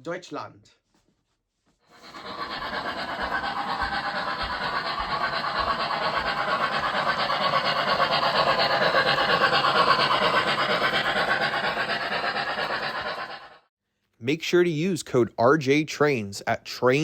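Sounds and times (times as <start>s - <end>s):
rapidly pulsing rasping noise: 1.9s - 13.7s.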